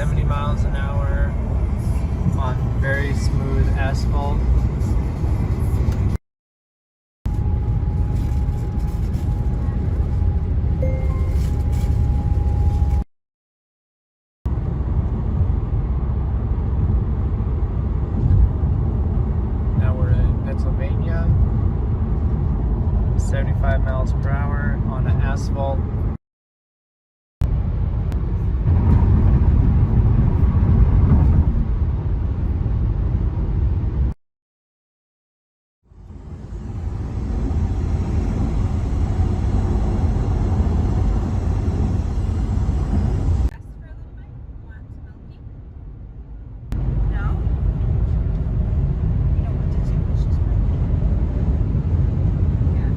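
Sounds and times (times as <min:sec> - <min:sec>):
low tyre rumble: 0:00.0 - 0:06.2, 0:07.3 - 0:13.0, 0:27.4 - 0:34.2, 0:35.8 - 0:52.9
road and wind hiss: 0:00.0 - 0:06.2, 0:14.5 - 0:26.1, 0:27.5 - 0:34.2, 0:35.9 - 0:52.9
faint steady high tone: 0:10.4 - 0:12.9.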